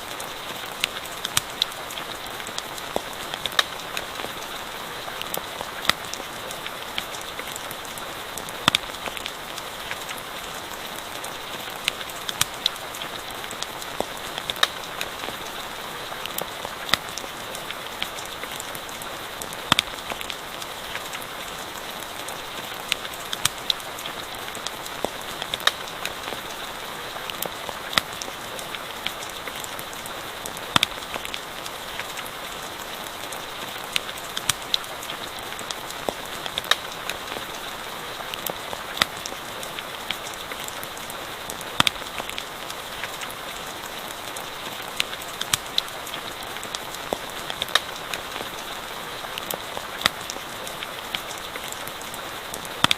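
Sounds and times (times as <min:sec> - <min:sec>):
campfire crackling: 0:00.0 - 0:52.9
rain hiss: 0:00.0 - 0:52.9.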